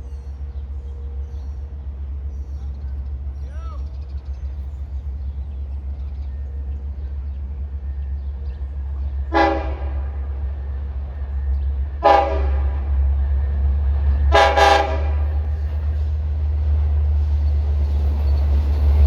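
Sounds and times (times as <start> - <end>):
train horn blasts: 9.3 - 10.3, 12.0 - 12.9, 14.3 - 15.5.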